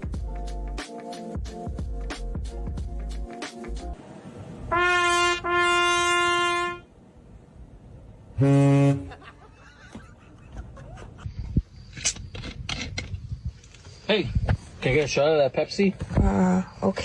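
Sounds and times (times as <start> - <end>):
high-pitched horn blasts: 4.7 - 6.9, 8.4 - 9.2
low-pitched horn honk: 4.7 - 6.9, 8.3 - 9.2.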